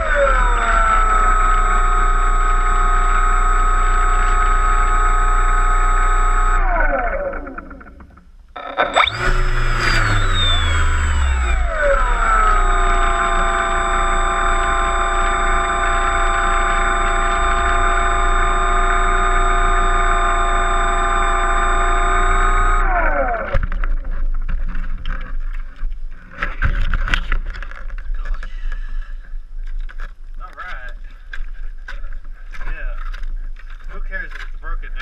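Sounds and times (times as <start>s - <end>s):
model plane motor whining: 0.0s - 23.7s
rustling noise: 23.6s - 34.7s.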